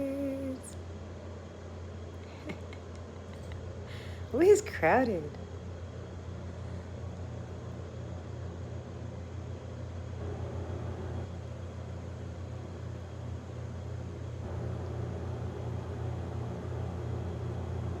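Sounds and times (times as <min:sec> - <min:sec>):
constant hum: 0:00.0 - 0:18.0.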